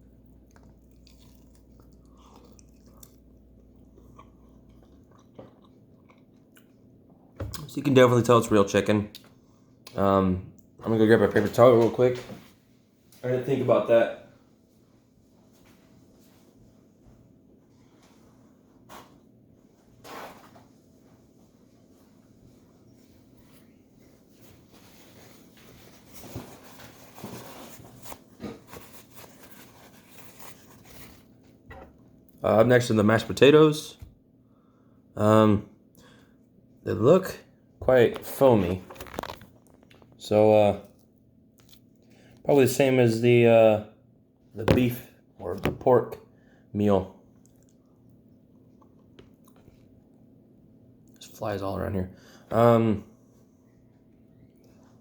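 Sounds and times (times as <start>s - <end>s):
chewing food: 0.0s - 7.7s, 40.8s - 42.4s, 47.3s - 50.2s
low room hum: 0.0s - 55.0s.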